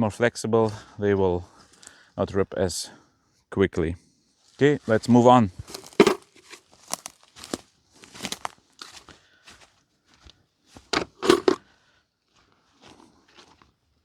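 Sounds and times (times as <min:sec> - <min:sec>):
footsteps crunching: 0:04.5 - 0:11.6, 0:12.3 - 0:13.8.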